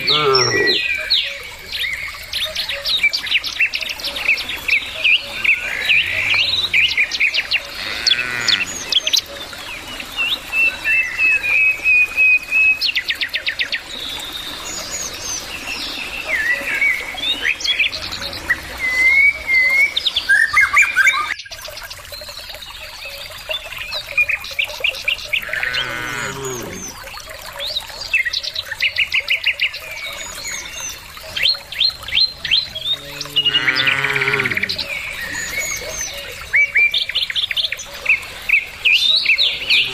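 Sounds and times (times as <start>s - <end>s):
cattle lowing: 0.0s - 0.8s, 25.5s - 27.0s
songbirds chirping and trilling: 0.0s - 11.8s, 12.8s - 39.9s.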